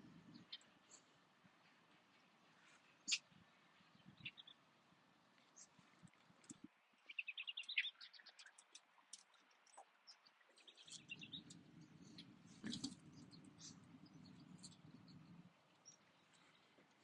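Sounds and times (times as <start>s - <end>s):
faint bird chirping: 0.0s - 17.0s
low steady rumble: 10.9s - 17.0s.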